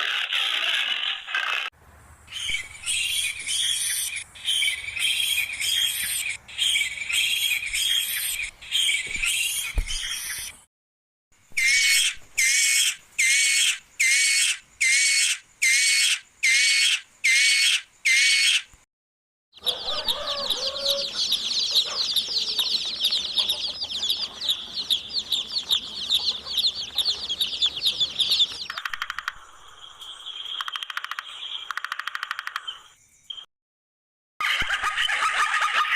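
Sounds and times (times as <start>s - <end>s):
bird calls: 2.3s - 10.7s, 19.6s - 33.5s
rapid overlapping bird chirping: 21.0s - 33.5s
fast ticking sound: 30.6s - 32.6s.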